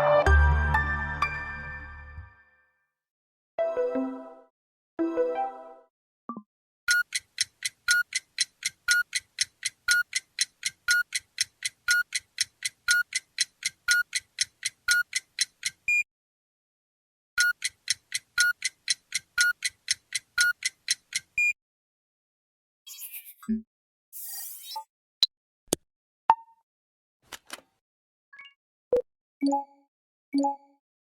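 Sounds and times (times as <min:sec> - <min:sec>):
rapid clock-like ticks: 0:06.9 - 0:16.0, 0:17.4 - 0:21.5.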